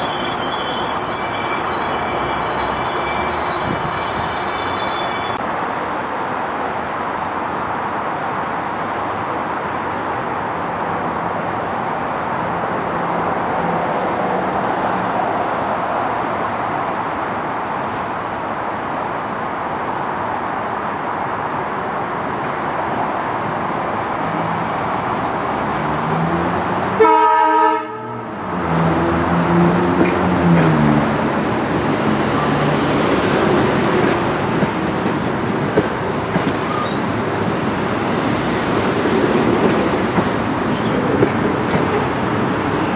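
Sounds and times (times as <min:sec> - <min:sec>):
multi-tone horn: 0:27.0 - 0:28.2
train wheels rumbling on rail: 0:28.3 - 0:42.9.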